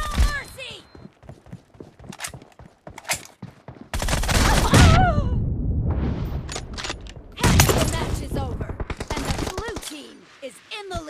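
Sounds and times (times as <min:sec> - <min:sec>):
video game gunfire: 0:07.4 - 0:10.0.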